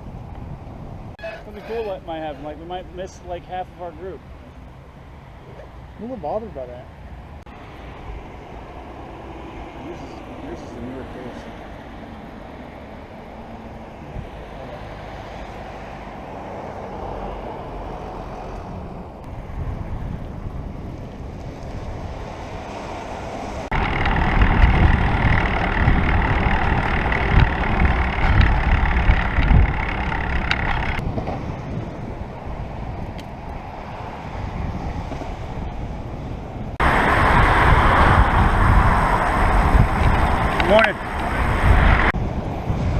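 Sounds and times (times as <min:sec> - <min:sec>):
road and traffic noise: 0:00.0 - 0:42.9
wind rushing over microphone: 0:11.5 - 0:42.9.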